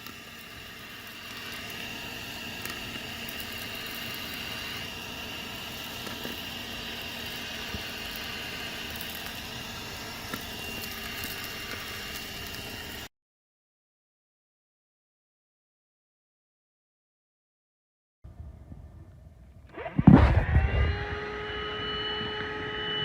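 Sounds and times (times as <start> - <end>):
handheld vacuum motor whine: 0.0 - 13.1, 19.7 - 23.0.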